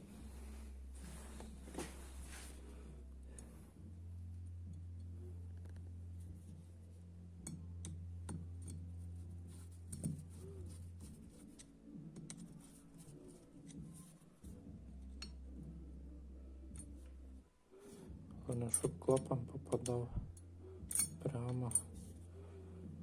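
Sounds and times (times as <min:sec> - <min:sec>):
steady low hum: 0:00.0 - 0:23.0
small metal parts clinking: 0:20.9 - 0:22.0.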